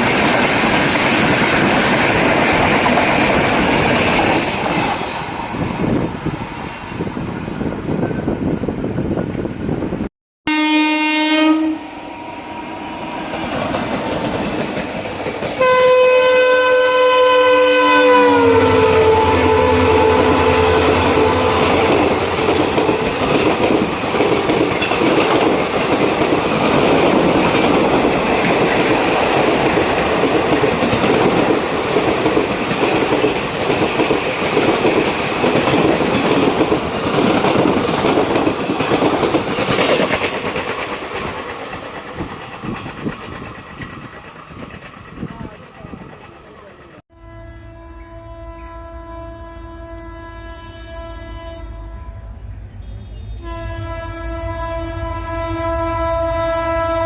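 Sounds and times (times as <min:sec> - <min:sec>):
train wheels clacking on rails: 0:00.0 - 0:06.7, 0:13.2 - 0:16.3, 0:19.2 - 0:47.0
diesel locomotive horn: 0:10.5 - 0:13.9, 0:15.6 - 0:24.5, 0:47.1 - 0:57.0.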